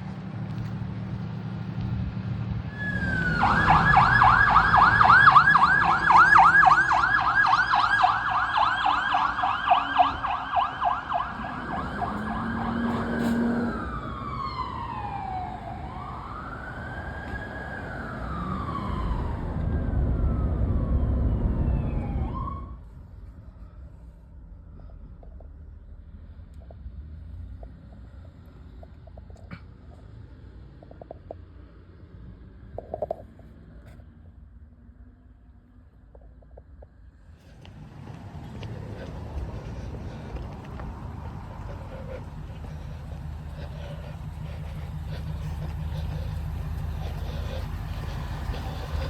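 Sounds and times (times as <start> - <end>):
low vehicle rumble: 0.0 - 49.0
emergency siren yelping and wailing: 2.7 - 22.9, 37.6 - 49.0.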